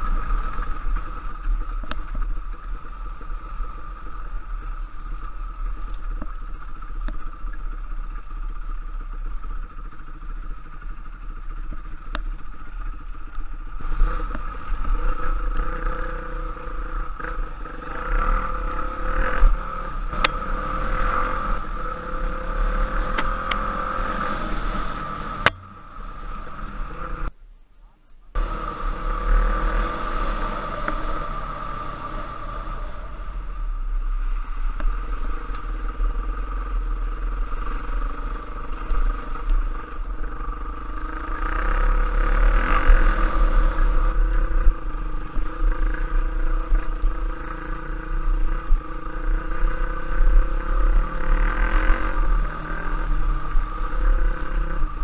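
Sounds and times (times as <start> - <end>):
motorcycle engine running: 0.0 - 27.3, 28.4 - 55.0.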